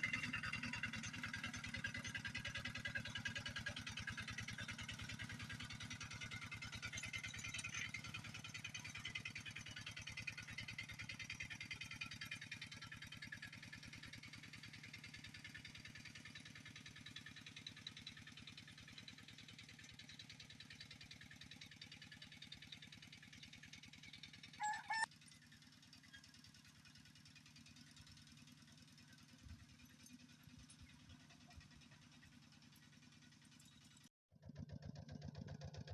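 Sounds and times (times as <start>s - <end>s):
double honk-like call: 24.6s - 25.0s.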